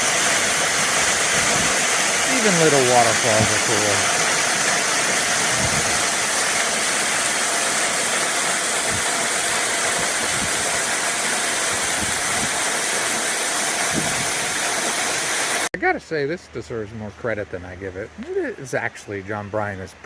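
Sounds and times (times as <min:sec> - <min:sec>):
small waterfall rushing: 0:00.0 - 0:15.7.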